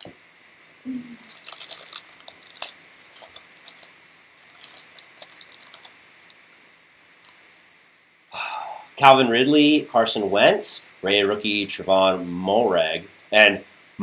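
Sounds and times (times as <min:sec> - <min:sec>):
trading cards rustling: 0:01.0 - 0:06.6.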